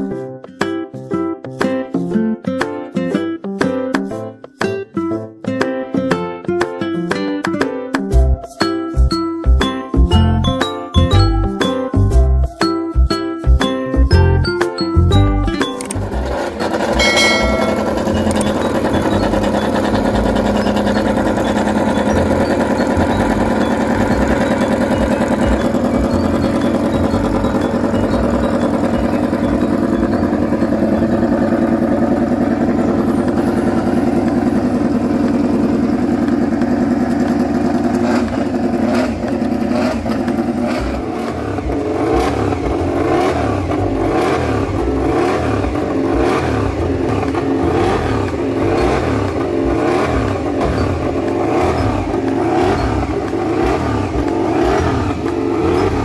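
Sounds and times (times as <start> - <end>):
racing motorcycle engine revving: 15.8 - 56.0.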